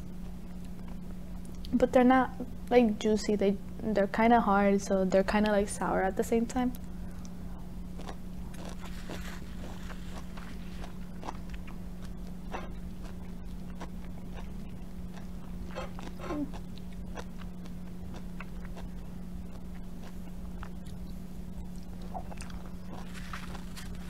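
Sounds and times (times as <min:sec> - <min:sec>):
low hum: 0:00.0 - 0:24.0
person chewing orange: 0:07.2 - 0:24.0.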